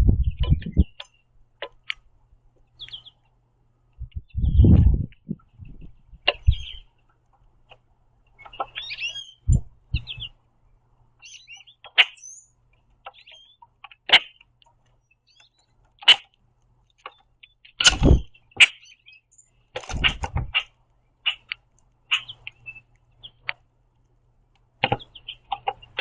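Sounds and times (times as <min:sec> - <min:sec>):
squeaky bird chirps: 0:00.2 - 0:01.8, 0:02.8 - 0:03.2, 0:06.2 - 0:06.9, 0:08.4 - 0:10.4, 0:11.2 - 0:14.4, 0:17.0 - 0:23.5, 0:24.8 - 0:26.0
grackles harsh chack calls: 0:11.8 - 0:12.2, 0:14.0 - 0:14.4, 0:19.9 - 0:21.5, 0:22.1 - 0:22.4.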